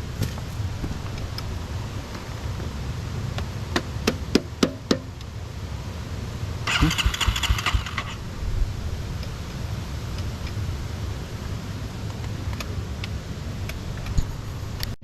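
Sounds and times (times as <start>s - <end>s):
low engine rumble: 0.0s - 3.8s, 5.1s - 15.0s
rapid rattling burst: 6.6s - 8.3s
motorcycle engine cranking: 6.7s - 8.2s
sharp clicks: 6.7s - 8.2s.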